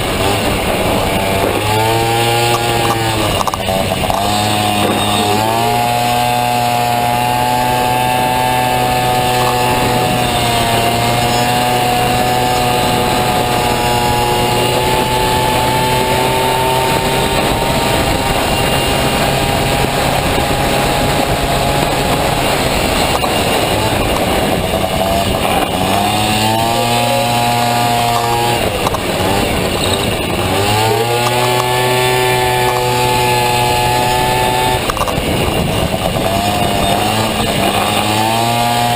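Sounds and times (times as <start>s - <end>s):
scooter engine revving: 0.0s - 38.9s.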